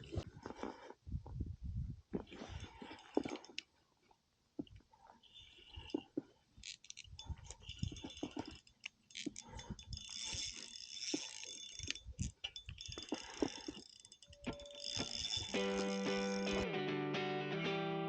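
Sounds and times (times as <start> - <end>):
gear clicking and rattling: 4.7 - 16.6.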